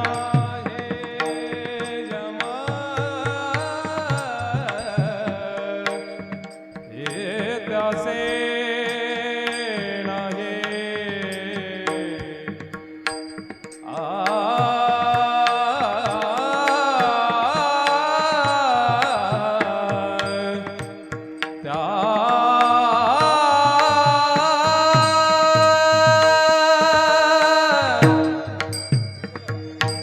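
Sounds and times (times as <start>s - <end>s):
hand-drum beat: 0.0s - 5.6s, 23.1s - 30.0s.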